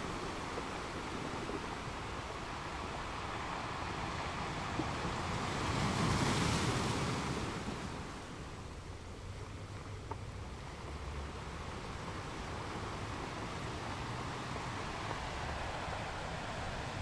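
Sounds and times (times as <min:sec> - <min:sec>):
sea water washing: 0:00.0 - 0:08.9, 0:10.6 - 0:17.0
wind on microphone: 0:11.2 - 0:17.0.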